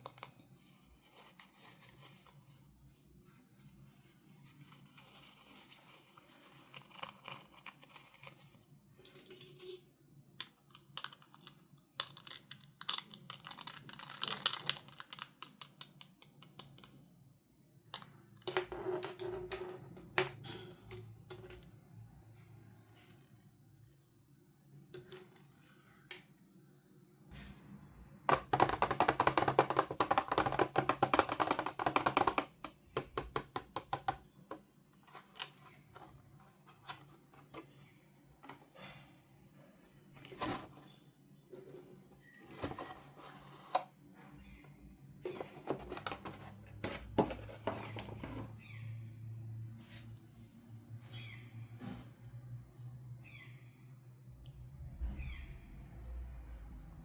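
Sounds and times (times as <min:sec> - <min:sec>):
toy packaging crackling: 0:10.8 - 0:16.9.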